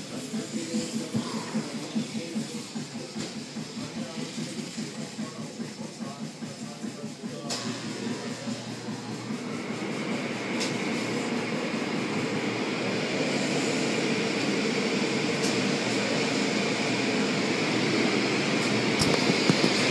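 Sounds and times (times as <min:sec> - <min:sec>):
car wash machinery rushing: 0:00.0 - 0:19.9.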